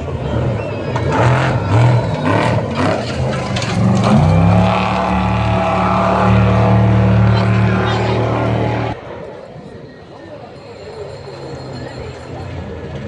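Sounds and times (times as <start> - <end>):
truck engine revving: 0.0 - 9.0.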